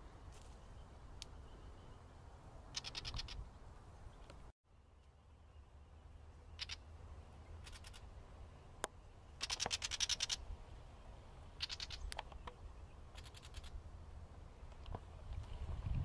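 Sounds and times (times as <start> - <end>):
small bird alarm chatter: 2.7 - 3.4, 6.5 - 6.9, 7.6 - 8.0, 9.3 - 10.4, 11.6 - 13.7.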